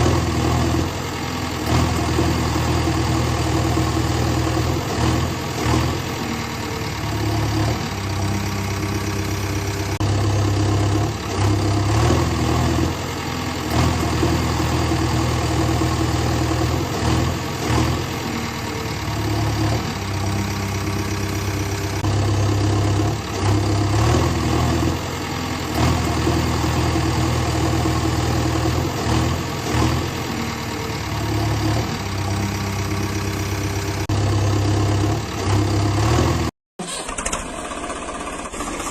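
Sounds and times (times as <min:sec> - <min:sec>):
vehicle engine idling: 0:00.0 - 0:36.2.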